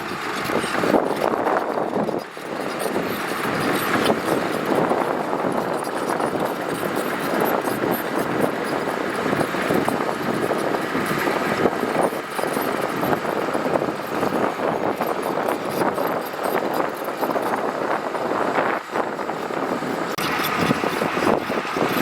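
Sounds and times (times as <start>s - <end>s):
gravel crackling clatter: 0.0s - 22.0s
heavy machinery engine drone: 0.0s - 22.0s.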